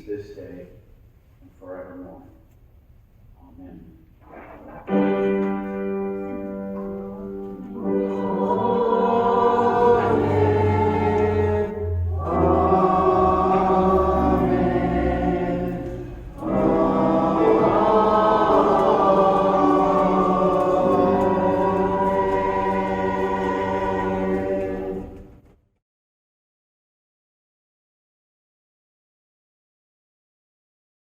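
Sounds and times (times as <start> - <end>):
choir singing sustained chords: 6.2 - 25.4.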